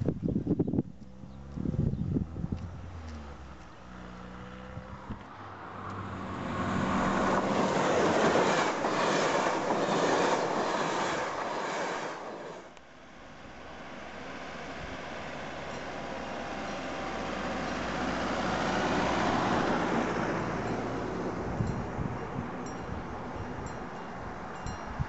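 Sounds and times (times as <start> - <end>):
train wheels clattering on rails: 6.9 - 12.7.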